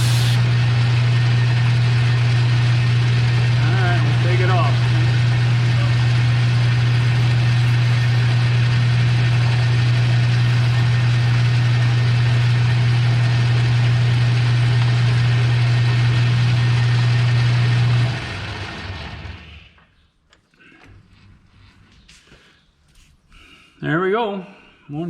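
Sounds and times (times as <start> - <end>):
metal lathe humming: 0.0 - 19.4.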